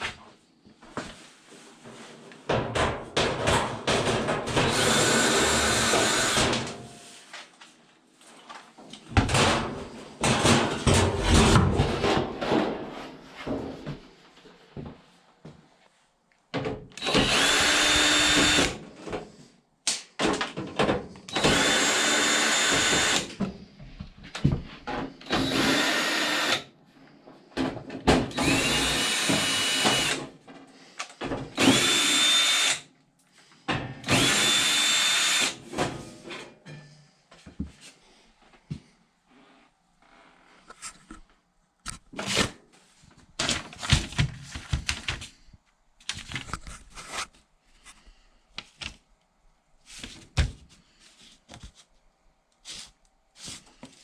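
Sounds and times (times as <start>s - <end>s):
power drill whining: 4.7s - 6.6s, 17.0s - 18.8s, 21.3s - 23.4s, 25.2s - 26.7s, 28.3s - 30.2s, 31.6s - 32.8s, 34.0s - 35.6s.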